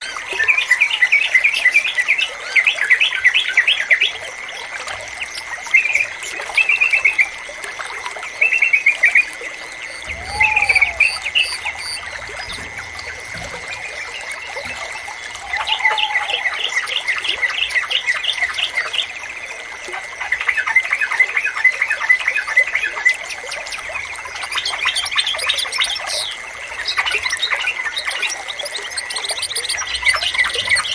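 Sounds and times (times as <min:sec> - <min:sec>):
bird singing bubbly chirps: 0:00.0 - 0:30.9
lower short bird call: 0:10.0 - 0:13.8
steady high tone: 0:10.0 - 0:14.2.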